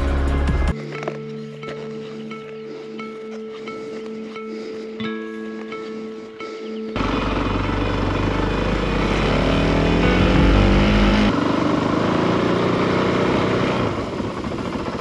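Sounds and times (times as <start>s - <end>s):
motorcycle engine accelerating: 6.9s - 15.0s.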